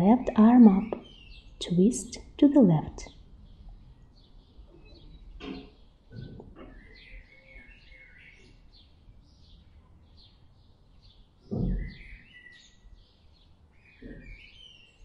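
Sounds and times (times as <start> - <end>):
small birds chirping: 0.0 - 15.0
low thud: 11.5 - 12.0.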